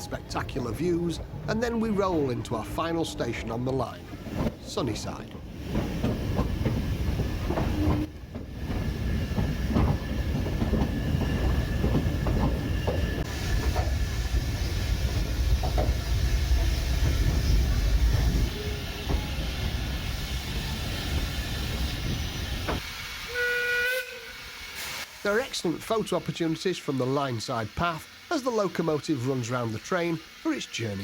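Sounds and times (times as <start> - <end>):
train rumble: 0.0 - 23.4.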